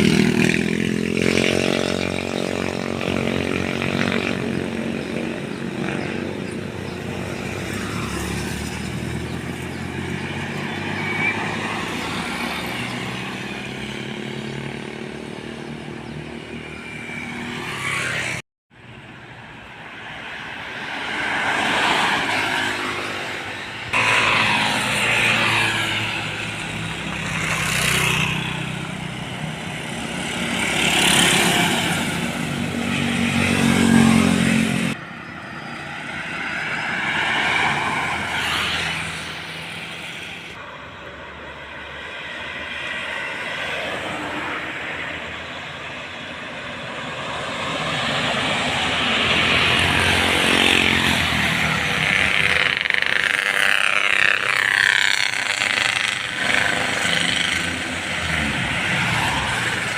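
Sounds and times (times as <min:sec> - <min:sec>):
vehicles rushing past: 0:00.0 - 0:59.9.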